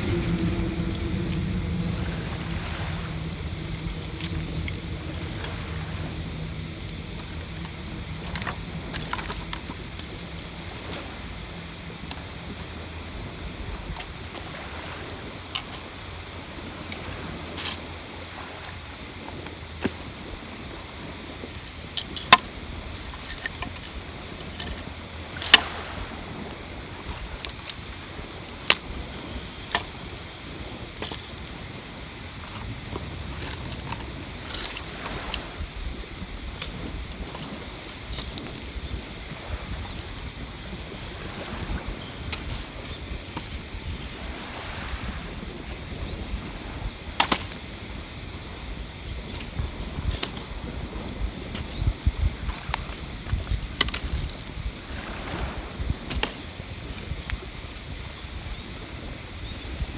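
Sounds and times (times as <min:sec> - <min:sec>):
steady rushing background: 0:00.0 - 0:13.7
low hum: 0:00.0 - 0:14.8
campfire popping and cracking: 0:00.0 - 0:59.9.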